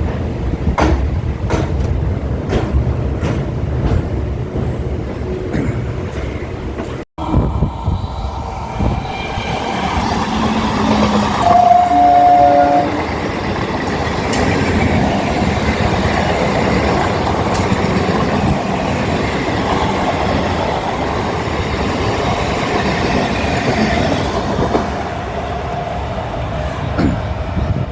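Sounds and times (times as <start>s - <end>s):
train running on rails: 0.0s - 27.9s
train horn: 10.9s - 13.2s.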